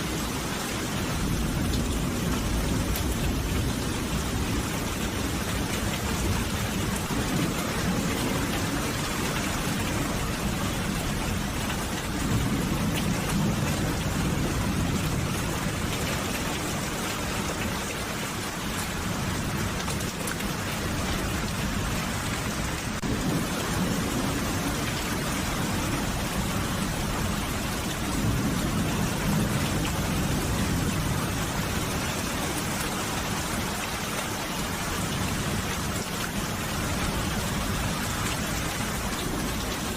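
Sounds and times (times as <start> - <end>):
steady rain: 0.0 - 39.9
thunder rumbling: 0.1 - 17.0, 19.0 - 33.8.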